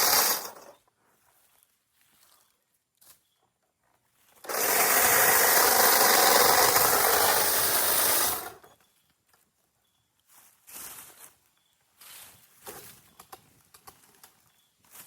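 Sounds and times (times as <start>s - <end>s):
power saw cutting tree limb: 0.0s - 0.7s, 4.4s - 8.7s.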